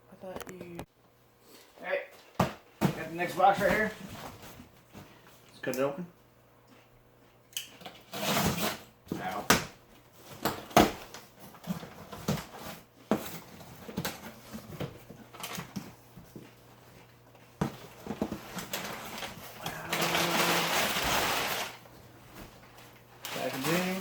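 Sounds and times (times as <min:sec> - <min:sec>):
box knocks and rustles: 0:02.4 - 0:04.6
loud cardboard tearing: 0:08.1 - 0:08.8, 0:18.6 - 0:21.8.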